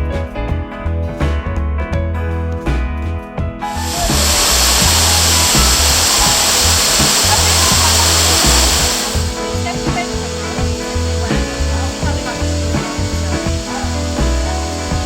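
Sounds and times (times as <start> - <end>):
background music with bass: 0.0 - 15.0
waterfall rushing: 3.8 - 15.0.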